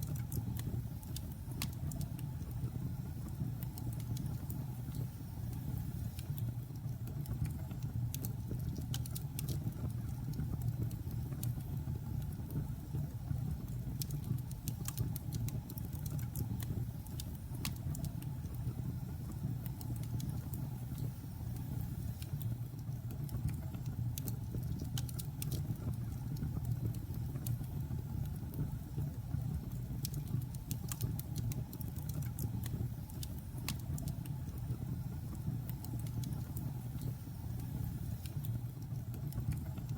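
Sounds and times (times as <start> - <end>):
low rumble of fire: 0.0 - 39.9
wood crackling and popping: 3.2 - 12.6, 19.4 - 28.7, 29.3 - 39.9.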